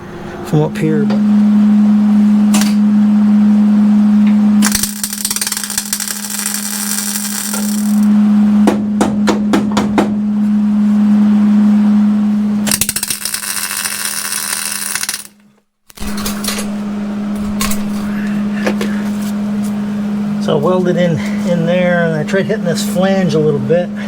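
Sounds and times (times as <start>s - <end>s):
welder hum: 1.0s - 8.7s, 10.7s - 24.0s
welding arc crackling: 4.6s - 8.1s, 12.6s - 16.3s.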